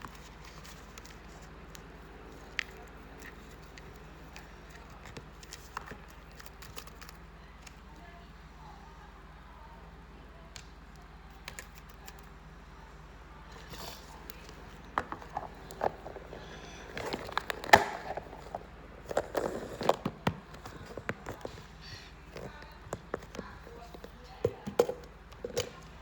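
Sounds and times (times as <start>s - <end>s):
package unboxing taps and crinkles: 14.2s - 21.7s.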